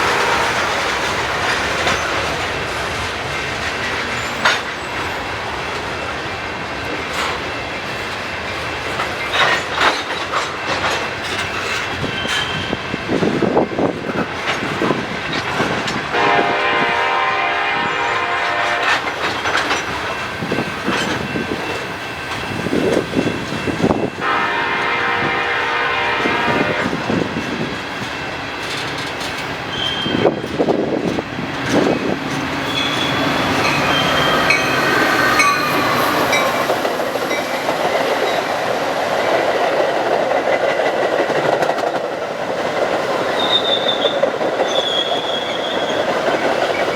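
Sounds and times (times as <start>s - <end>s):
train air horn blasts: 0.0s - 0.9s, 16.1s - 19.1s, 24.2s - 27.2s
wheels clattering over rail joints: 0.0s - 6.0s, 6.8s - 16.2s, 18.5s - 46.9s
train passing: 0.0s - 46.9s.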